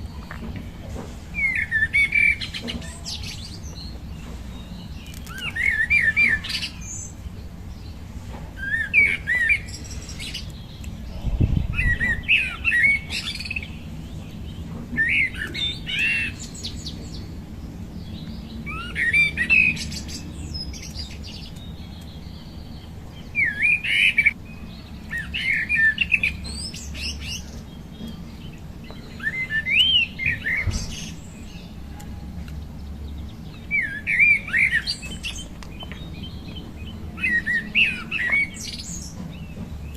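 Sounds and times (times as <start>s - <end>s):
songbird singing: 0.0s - 39.9s
low rumble: 10.9s - 12.6s.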